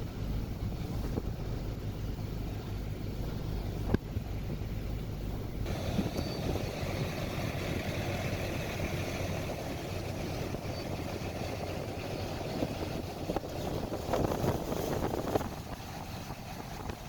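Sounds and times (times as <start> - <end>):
blizzard wind blowing: 0.0 - 17.0.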